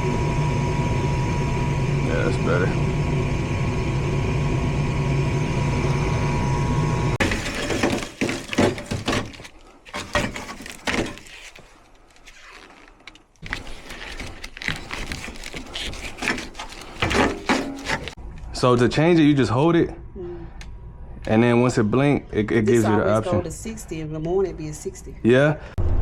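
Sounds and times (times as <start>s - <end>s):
gas furnace humming: 0.0s - 11.9s, 13.4s - 25.7s
knocks and clatter: 7.2s - 11.3s.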